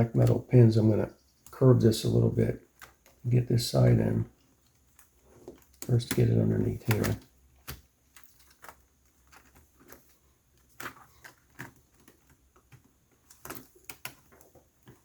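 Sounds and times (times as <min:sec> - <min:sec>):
faint plastic keyboard clicks: 0:04.3 - 0:15.0.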